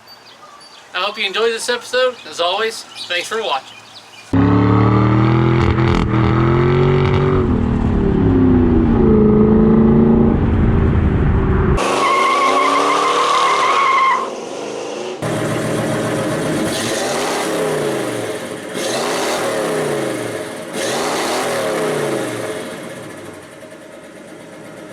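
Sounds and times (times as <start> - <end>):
engine and road noise: 0.0 - 24.9.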